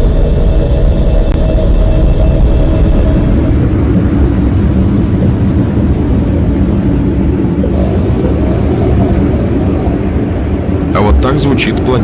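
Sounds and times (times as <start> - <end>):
steady deep noise: 0.0 - 12.0.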